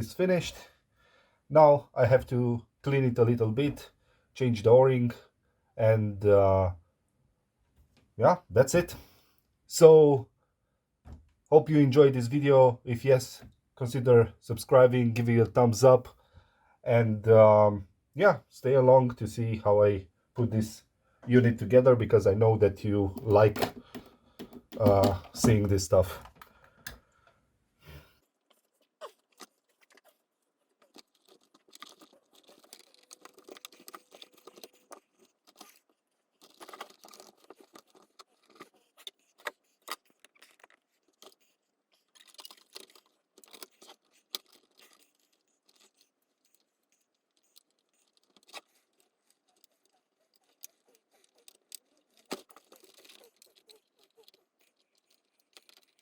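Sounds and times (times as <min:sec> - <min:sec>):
plastic parts clicking and scraping: 0:22.8 - 0:27.4, 0:28.2 - 0:56.0.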